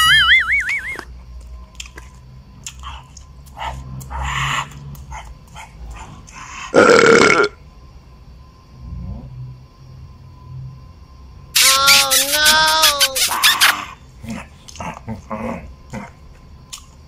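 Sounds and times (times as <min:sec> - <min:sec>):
man chewing and smacking: 0:01.0 - 0:04.1, 0:16.7 - 0:17.0.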